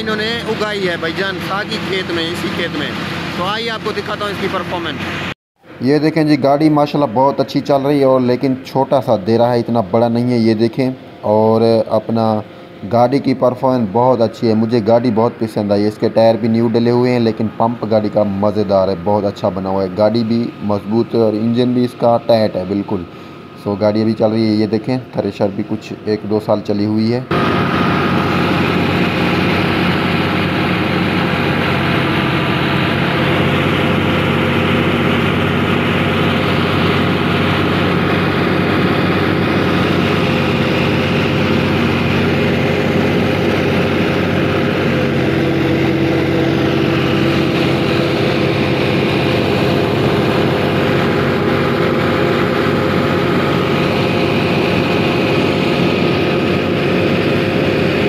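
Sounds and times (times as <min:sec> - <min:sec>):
thresher drum and blower: 0:00.0 - 0:05.8, 0:27.3 - 0:58.0
tractor diesel engine under load: 0:00.0 - 0:58.0.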